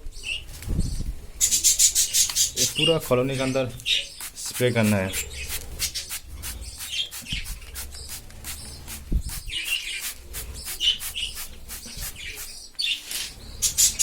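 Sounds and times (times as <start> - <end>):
budgerigars chirping: 0.2 - 14.0
spray bottle hissing puffs: 4.1 - 4.8, 5.4 - 14.0.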